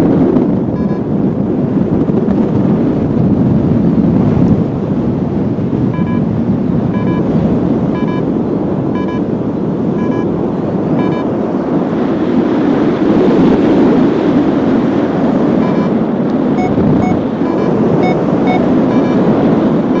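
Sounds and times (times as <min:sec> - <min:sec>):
strong wind on microphone: 0:00.0 - 0:20.0
variometer beeping: 0:00.7 - 0:01.2, 0:05.8 - 0:11.4, 0:15.5 - 0:20.0.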